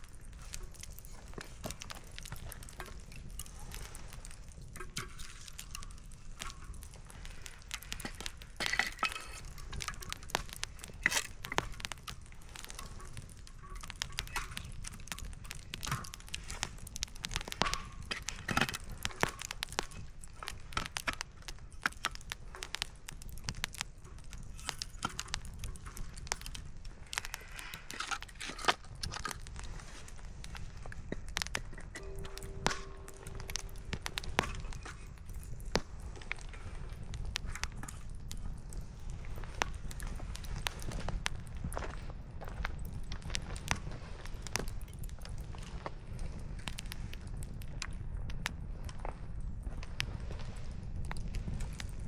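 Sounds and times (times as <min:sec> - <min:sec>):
firewood crackling and popping: 0:00.0 - 0:52.0.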